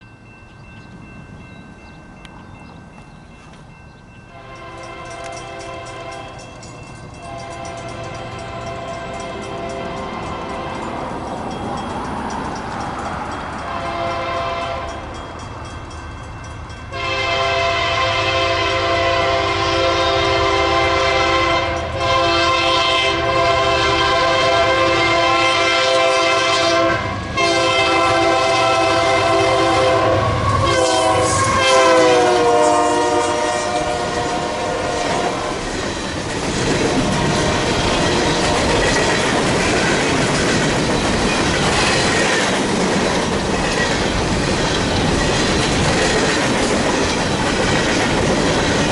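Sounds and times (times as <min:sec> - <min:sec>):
locomotive air horn blasts: 0:04.3 - 0:06.4, 0:07.2 - 0:10.9, 0:13.6 - 0:15.0, 0:16.9 - 0:35.7, 0:36.8 - 0:38.8
train wheels clattering over rail joints: 0:35.1 - 0:48.9.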